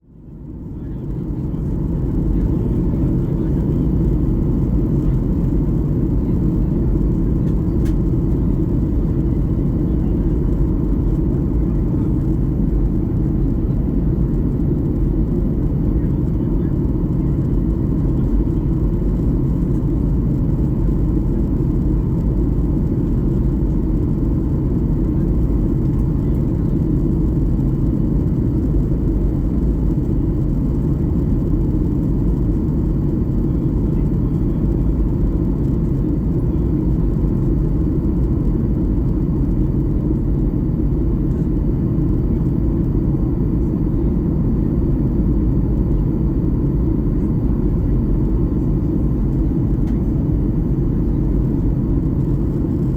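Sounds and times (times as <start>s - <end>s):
airplane cabin engine rumble: 0.0s - 52.9s.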